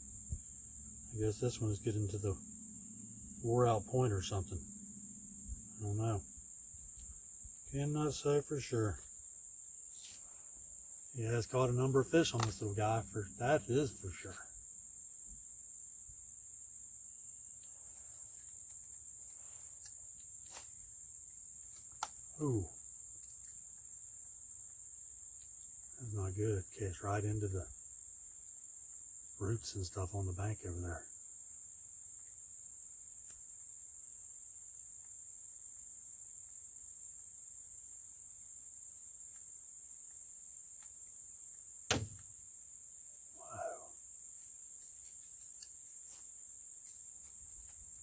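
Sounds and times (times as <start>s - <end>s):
insects chorus: 0.0s - 48.0s
faint ticks: 19.7s - 20.8s, 21.6s - 24.0s, 44.9s - 46.5s.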